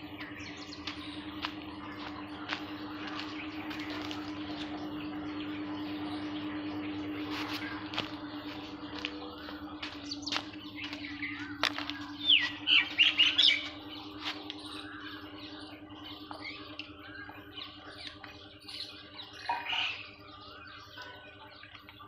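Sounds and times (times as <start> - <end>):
birds chirping and squawking: 0.0 - 22.0
steady low hum: 0.0 - 22.0.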